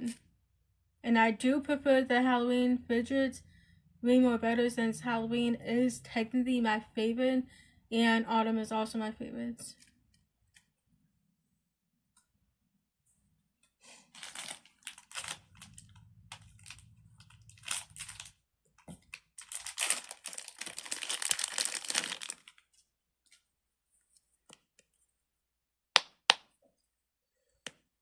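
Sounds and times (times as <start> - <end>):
plastic crinkling and rustling: 14.1 - 23.5.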